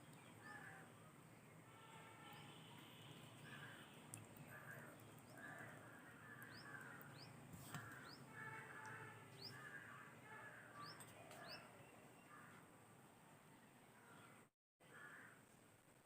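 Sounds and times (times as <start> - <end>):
faint bird calls: 1.8 - 12.7.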